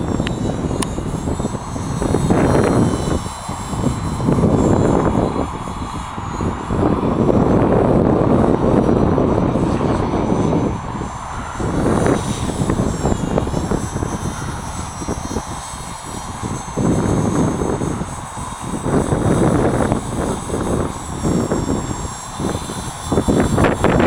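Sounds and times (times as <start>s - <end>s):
helicopter motor and rotor whine: 0.0s - 24.0s
wind buffeting microphone: 0.0s - 24.0s.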